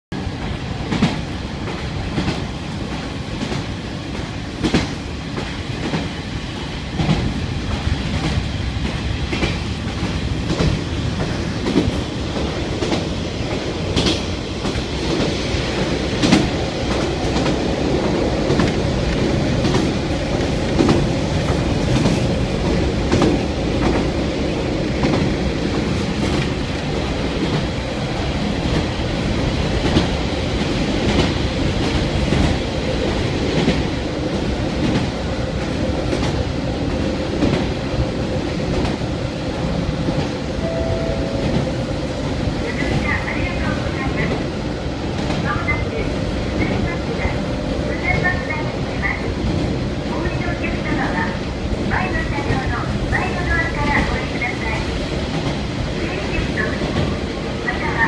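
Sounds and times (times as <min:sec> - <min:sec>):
railcar rumble: 0:00.1 - 0:58.0.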